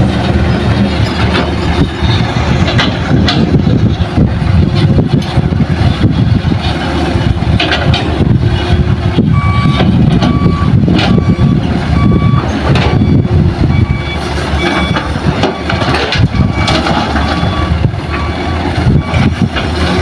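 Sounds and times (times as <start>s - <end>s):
large diesel engine running: 0.0s - 20.0s
back-up alarm beeps: 9.3s - 19.4s.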